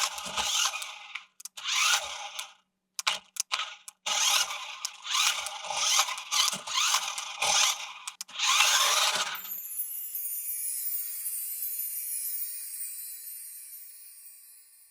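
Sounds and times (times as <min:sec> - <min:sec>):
plastic toy mechanism clicking: 0:00.0 - 0:09.4
bright steady hiss: 0:09.5 - 0:14.9.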